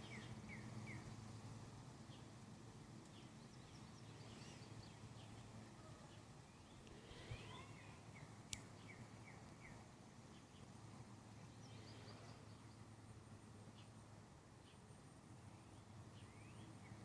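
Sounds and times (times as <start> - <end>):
faint bird chirps: 0.0 - 1.2, 3.1 - 10.8, 11.4 - 13.0, 15.5 - 17.0
steady low hum: 0.0 - 17.0.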